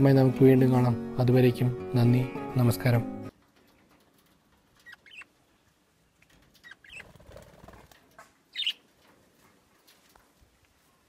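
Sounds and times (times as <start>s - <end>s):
soft rustle: 3.3s - 11.0s
budgerigars chirping: 4.9s - 5.3s, 6.6s - 7.2s, 8.5s - 8.8s.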